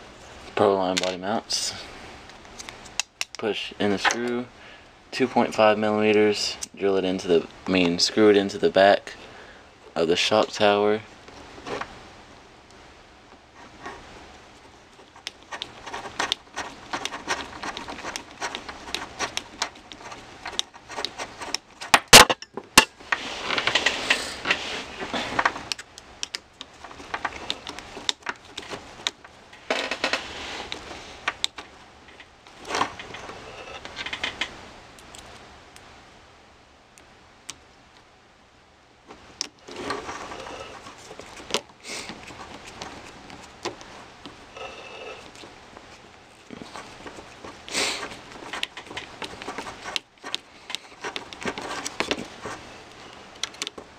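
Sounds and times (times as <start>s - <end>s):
hex driver clicking and scraping: 15.0s - 22.0s, 46.4s - 52.6s
plastic parts rattling: 25.3s - 34.5s, 46.4s - 52.6s.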